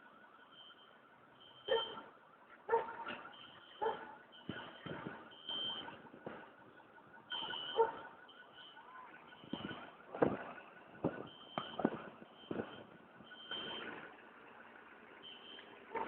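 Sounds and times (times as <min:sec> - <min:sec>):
knocks and clatter: 0:04.4 - 0:06.6, 0:09.4 - 0:13.0.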